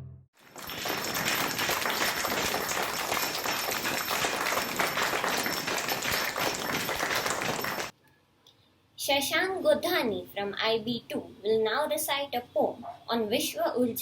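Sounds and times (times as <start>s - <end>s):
crowd applause: 0.4s - 7.9s.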